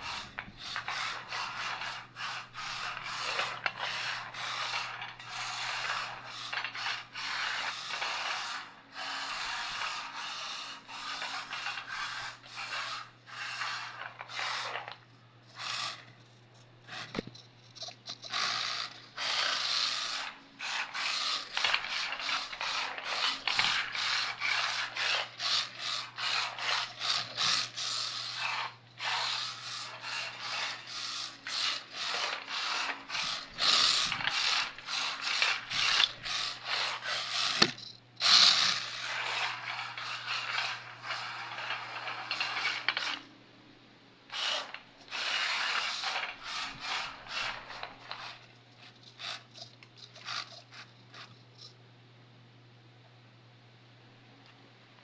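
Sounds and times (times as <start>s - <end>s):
toy car tyres sliding and scraping: 0.0s - 43.3s, 44.3s - 51.4s
faint steady hum: 0.0s - 55.0s.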